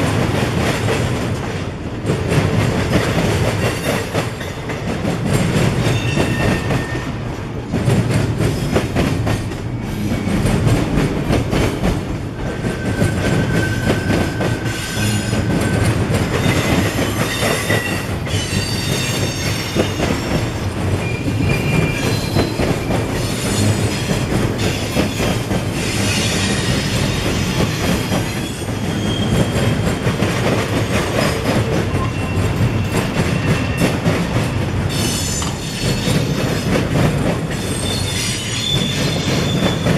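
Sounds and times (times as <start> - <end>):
freight train cars rumbling: 0.0 - 39.9
high-pitched wheel squeals: 37.6 - 39.8.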